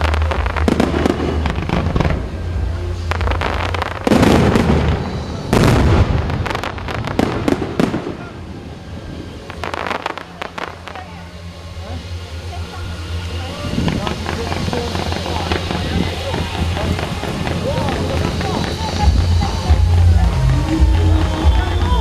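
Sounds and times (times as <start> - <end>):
fireworks booming and crackling: 0.0 - 11.2, 12.0 - 22.0
heavy firework blasts: 0.0 - 22.0.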